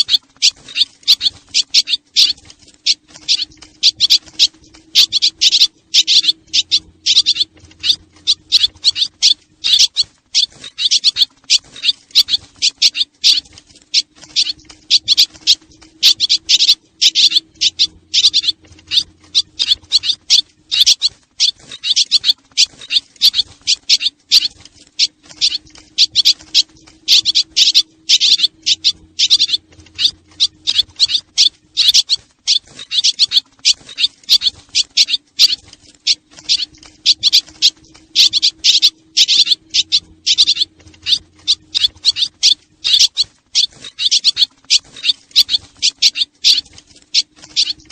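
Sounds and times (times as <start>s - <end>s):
faint low hum: 0.0s - 47.9s
flock of birds chirping: 0.0s - 47.9s.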